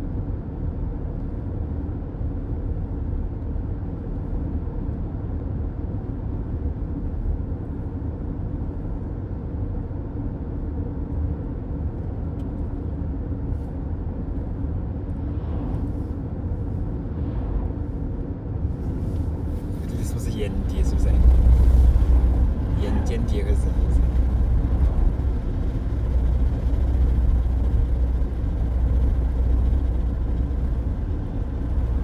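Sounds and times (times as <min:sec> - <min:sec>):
car road noise rumble: 0:12.3 - 0:32.0.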